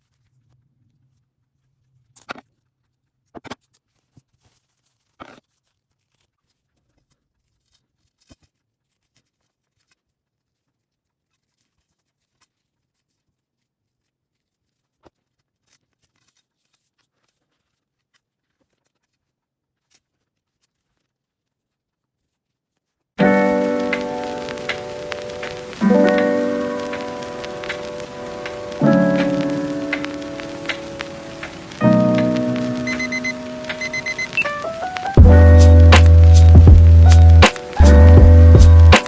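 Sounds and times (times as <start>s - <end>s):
small clicks and rustles: 0.0s - 35.2s.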